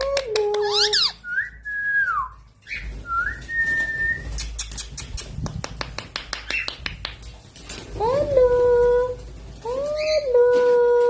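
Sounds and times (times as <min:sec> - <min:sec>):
quick sharp clicks: 0:04.3 - 0:07.3.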